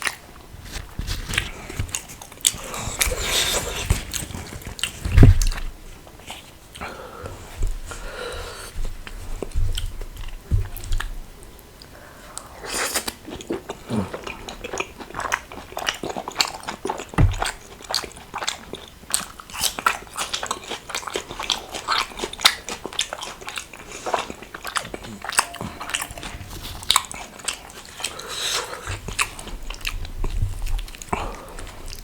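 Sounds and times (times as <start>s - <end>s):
person chewing food: 0.0s - 32.0s
low thumps: 25.3s - 27.4s.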